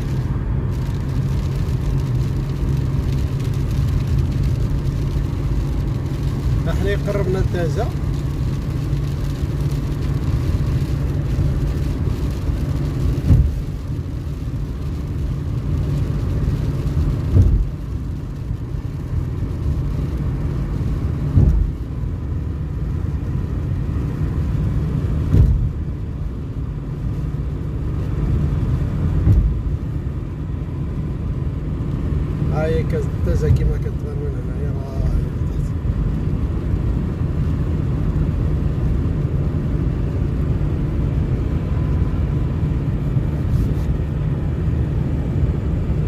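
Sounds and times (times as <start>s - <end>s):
car engine and road noise: 0.0s - 46.0s
car thump: 13.1s - 13.7s, 17.2s - 17.8s, 21.2s - 22.0s, 25.2s - 25.9s, 29.1s - 29.8s.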